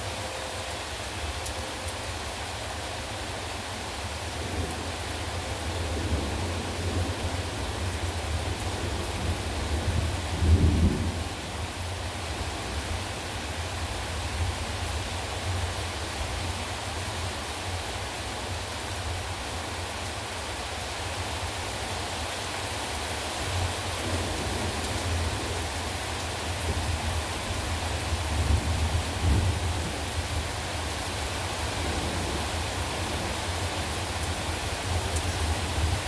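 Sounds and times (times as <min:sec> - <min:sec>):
heavy rain falling: 0:00.0 - 0:36.0
thunder rumbling: 0:04.4 - 0:12.9, 0:24.0 - 0:36.0.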